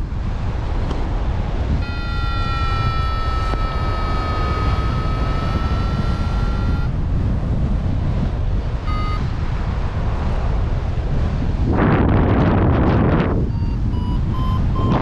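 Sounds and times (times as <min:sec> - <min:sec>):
wind buffeting microphone: 0:00.0 - 0:15.0
rising electronic tone: 0:01.8 - 0:06.9, 0:08.9 - 0:09.3, 0:13.5 - 0:15.0
short beep: 0:01.8 - 0:06.9, 0:08.9 - 0:09.3, 0:13.5 - 0:15.0.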